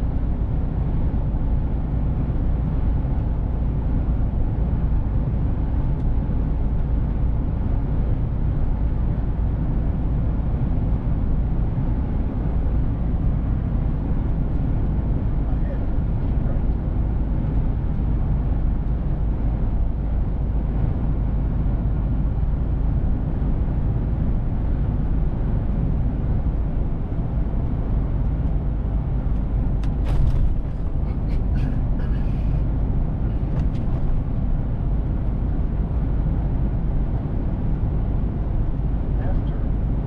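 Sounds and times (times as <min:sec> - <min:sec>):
diesel truck engine rumble: 0:00.0 - 0:40.0.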